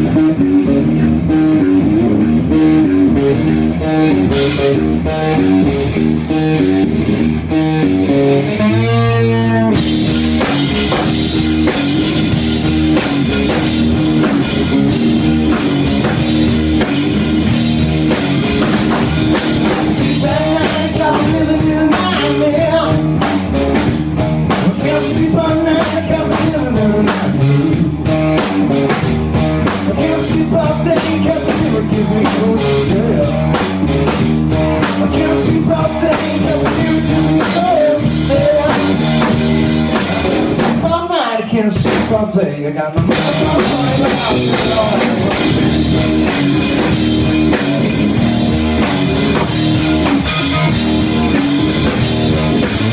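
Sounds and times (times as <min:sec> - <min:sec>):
electric guitar: 0:00.0 - 0:52.9
rock band playing: 0:00.0 - 0:52.9
drums with cymbals: 0:09.8 - 0:40.9, 0:43.0 - 0:52.9.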